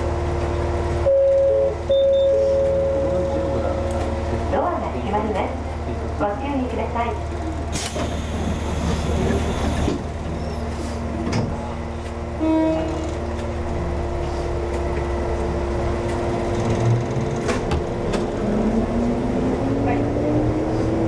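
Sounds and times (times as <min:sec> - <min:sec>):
steady pitched tone: 0:01.1 - 0:04.0
electric train running hum: 0:02.4 - 0:21.0.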